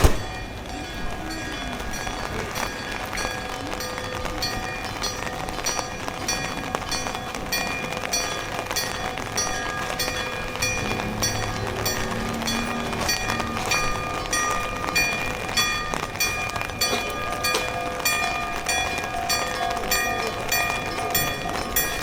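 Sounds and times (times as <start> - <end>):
train wheels clicking: 0.0 - 22.0.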